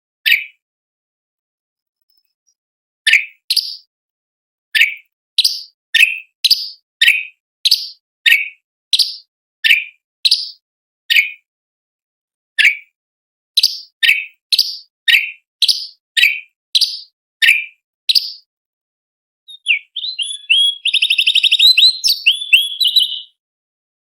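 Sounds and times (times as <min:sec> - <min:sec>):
bird calling in sharp notes: 0:19.5 - 0:23.4.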